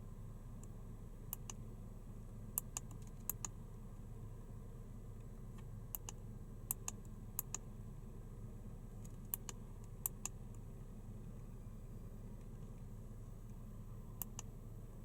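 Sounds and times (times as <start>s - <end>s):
low steady hum: 0.0s - 15.0s
light sharp clicks: 1.3s - 1.6s, 2.6s - 3.6s, 5.2s - 7.7s, 9.0s - 10.6s, 14.2s - 14.5s.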